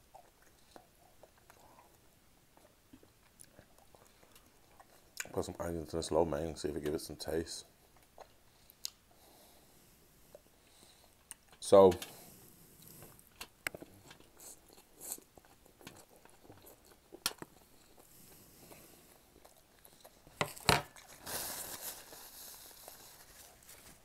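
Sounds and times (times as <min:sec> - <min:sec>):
person chewing food: 0:00.0 - 0:05.3, 0:07.8 - 0:09.4, 0:10.2 - 0:21.2.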